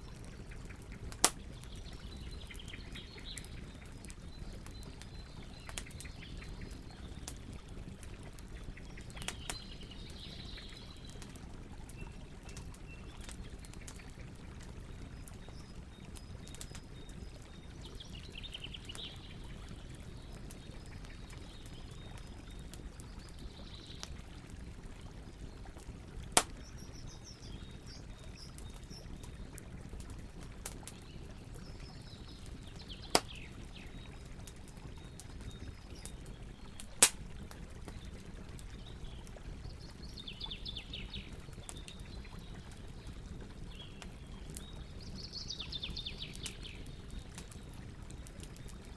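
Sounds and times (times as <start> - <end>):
campfire wood crackling: 0.0 - 48.9
fire popping loudly: 32.6 - 39.2.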